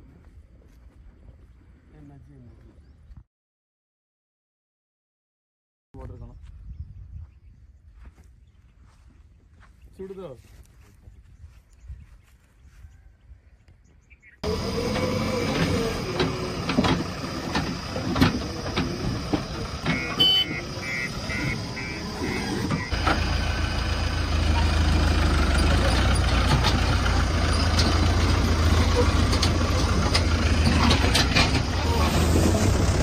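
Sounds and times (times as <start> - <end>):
heavy vehicle engine clattering: 14.4 - 33.0
high-pitched beeps: 19.9 - 22.9.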